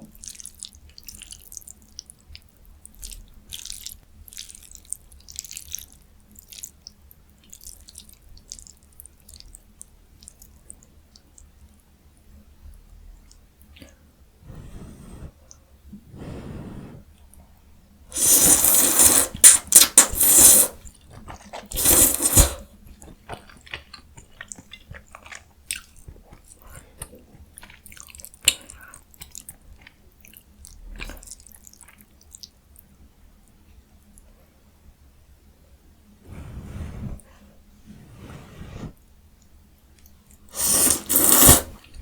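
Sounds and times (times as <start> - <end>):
chewing with wet clicks: 0.1 - 14.0, 20.8 - 21.8, 22.8 - 34.3
mouth eating noodles: 18.2 - 28.9, 40.5 - 42.0.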